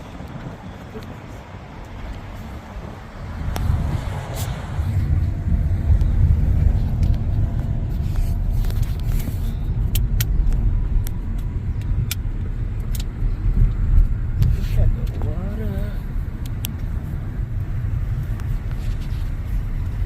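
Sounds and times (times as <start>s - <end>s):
low rumble of road traffic: 0.0s - 20.0s
car passing close by: 0.9s - 9.5s.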